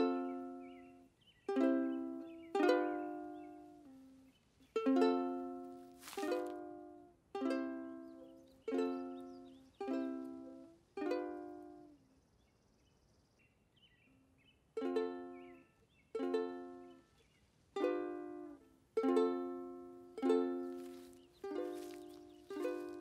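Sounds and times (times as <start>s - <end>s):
strummed string chords: 17.8s - 23.0s.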